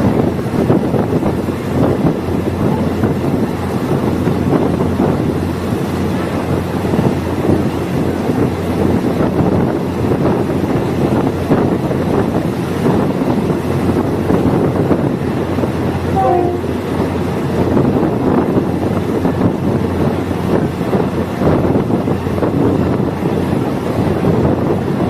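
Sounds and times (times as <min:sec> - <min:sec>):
train rumbling on rails: 0:00.0 - 0:25.0
brief faint tone: 0:16.1 - 0:16.9.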